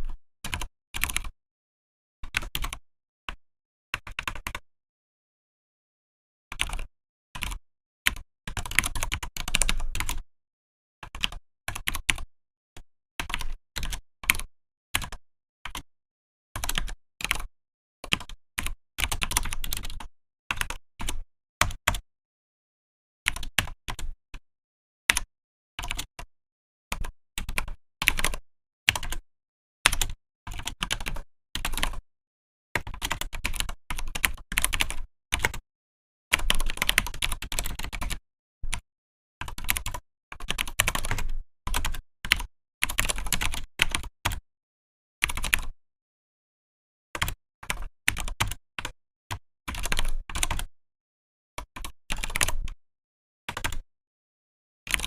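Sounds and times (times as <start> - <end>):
typing on mechanical keyboard: 6.6 - 10.2, 15.0 - 15.8, 18.1 - 22.0, 26.9 - 29.2, 29.9 - 32.0, 32.8 - 35.6, 36.3 - 38.8, 39.4 - 44.4, 45.2 - 45.7, 47.2 - 50.7, 51.7 - 52.8, 53.5 - 53.8.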